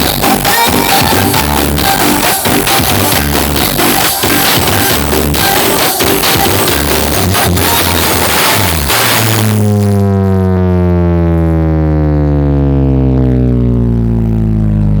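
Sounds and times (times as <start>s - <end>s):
rock music: 0.0s - 9.7s
sustained deep bass note: 8.0s - 15.0s.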